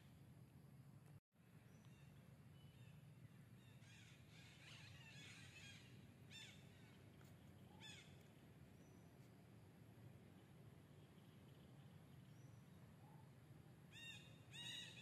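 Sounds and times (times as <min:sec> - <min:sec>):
low steady hum: 0:00.0 - 0:15.0
faint bird calls: 0:01.6 - 0:09.1, 0:11.0 - 0:15.0.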